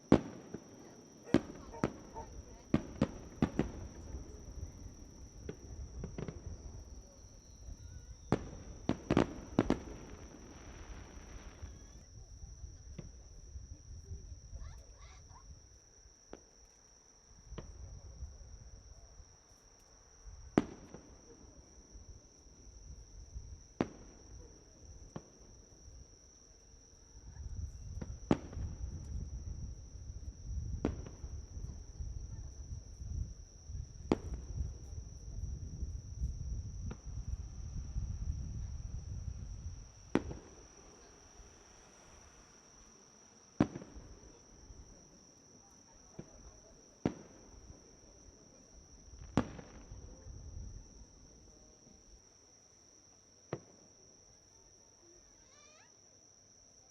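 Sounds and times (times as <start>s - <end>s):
fireworks bangs: 0.0s - 12.2s, 20.5s - 21.7s, 23.3s - 25.8s, 27.3s - 48.2s, 48.9s - 50.3s
insect chirring: 0.0s - 16.8s.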